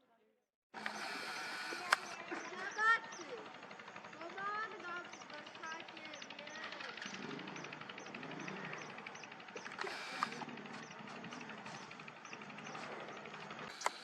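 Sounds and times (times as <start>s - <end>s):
low background murmur: 0.8s - 14.0s.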